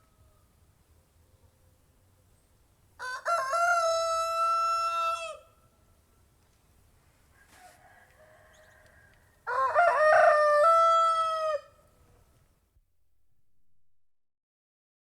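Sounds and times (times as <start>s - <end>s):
rooster crowing: 3.0s - 5.6s, 7.3s - 11.9s.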